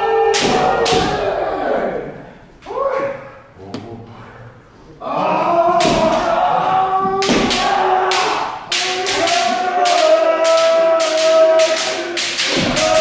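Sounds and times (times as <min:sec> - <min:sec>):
group shouting: 0:00.0 - 0:02.2, 0:05.0 - 0:13.0.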